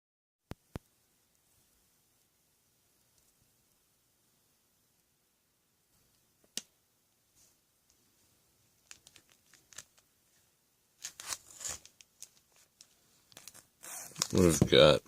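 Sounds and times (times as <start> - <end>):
crinkling wrapper rustle: 8.8 - 10.4, 11.0 - 15.0.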